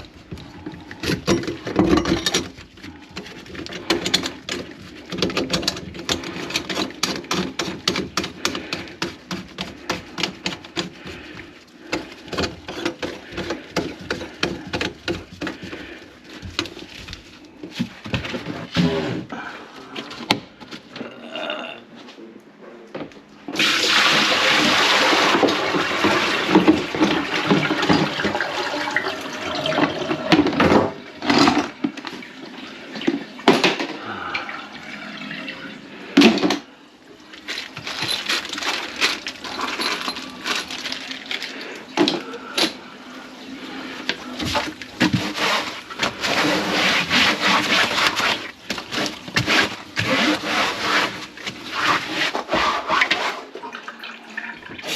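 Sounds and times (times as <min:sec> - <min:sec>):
pipe knocks and clanks: 0:00.0 - 0:11.1
water rushing down a drain: 0:23.6 - 0:36.5.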